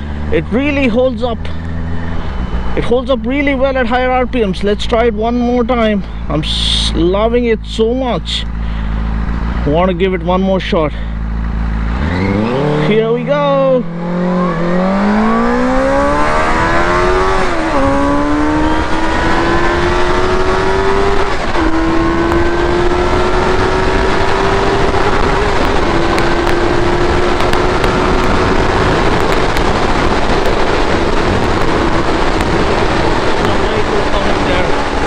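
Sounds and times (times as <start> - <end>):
motorcycle engine accelerating hard: 0.0 - 35.0.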